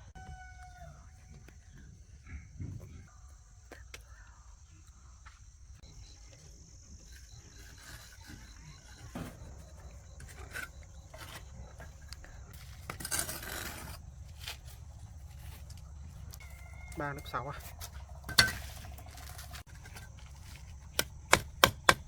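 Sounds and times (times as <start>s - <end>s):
high insect drone: 0.0s - 22.0s
scraping rustle: 7.0s - 20.9s
sharp knocks: 20.9s - 22.0s.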